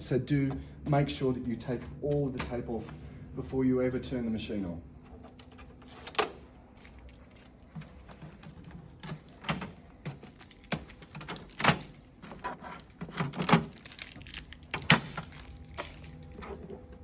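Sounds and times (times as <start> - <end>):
tape peeling: 5.2 - 16.9
hands clicking and scraping plastic: 5.2 - 17.0.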